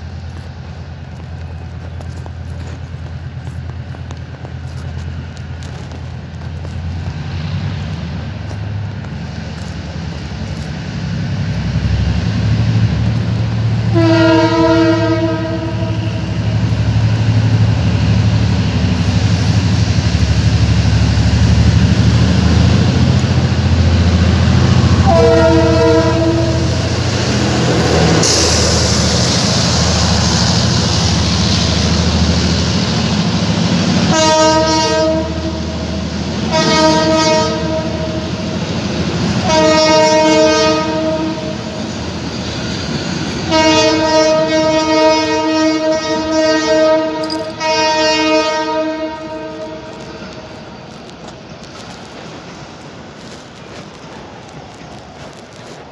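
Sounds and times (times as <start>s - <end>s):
locomotive hiss: 0.0s - 55.9s
train passing rumble: 0.0s - 55.9s
locomotive multi-tone horn: 13.7s - 16.6s, 24.9s - 27.0s, 34.0s - 38.6s, 39.4s - 41.8s, 43.4s - 50.5s.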